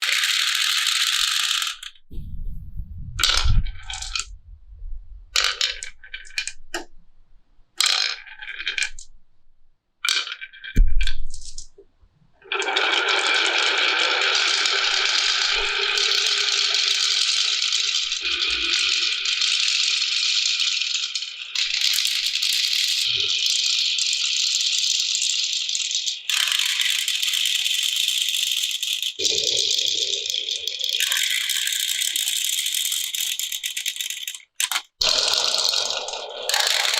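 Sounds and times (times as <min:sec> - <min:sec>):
glass marbles rolling down wooden run: 0:00.0 - 0:02.0, 0:03.2 - 0:04.3, 0:05.4 - 0:06.9, 0:07.8 - 0:09.1, 0:10.0 - 0:11.7, 0:12.4 - 0:36.9
low rumbles: 0:02.0 - 0:07.8.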